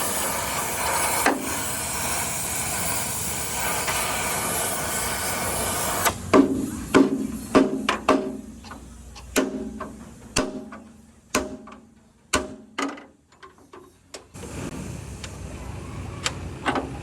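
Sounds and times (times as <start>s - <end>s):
hammer on sheet metal: 6.3s - 8.5s, 9.3s - 12.8s.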